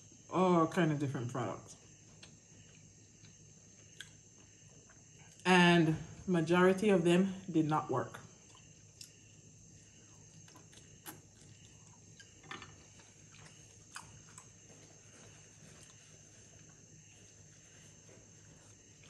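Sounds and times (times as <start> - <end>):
faint high-pitched hum: 0.0 - 19.0
person chewing noodles: 10.0 - 16.7.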